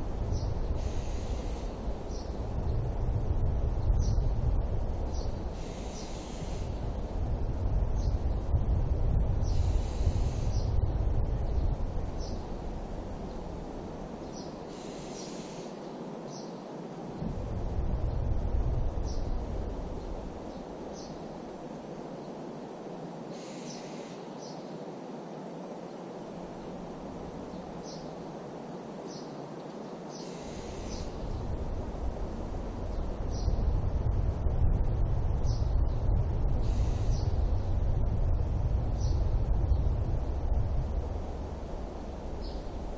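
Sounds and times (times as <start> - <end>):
wind rumble on microphone: 0.0 - 42.9
bird chirping: 30.1 - 31.5.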